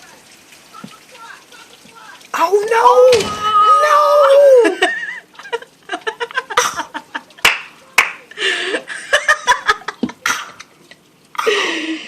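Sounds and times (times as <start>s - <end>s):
people laughing and exclaiming: 2.9s - 7.5s.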